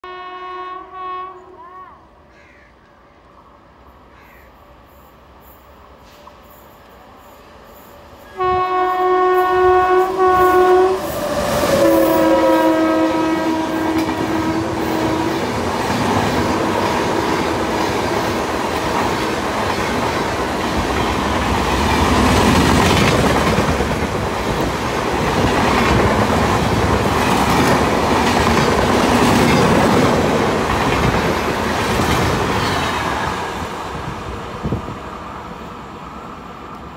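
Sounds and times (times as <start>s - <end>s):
train horn blast: 0.0s - 2.0s, 8.3s - 15.6s
train coaches rumbling past: 0.1s - 36.9s.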